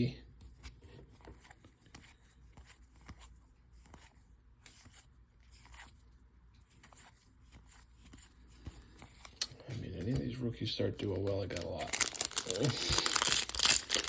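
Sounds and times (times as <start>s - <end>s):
trading cards clicking and rustling: 6.7s - 14.0s.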